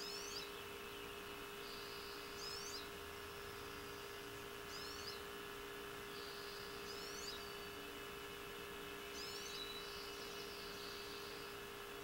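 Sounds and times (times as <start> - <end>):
small bird twittering: 0.0 - 3.0, 3.8 - 5.3, 6.1 - 7.7, 9.1 - 11.5
steady low hum: 0.0 - 12.0.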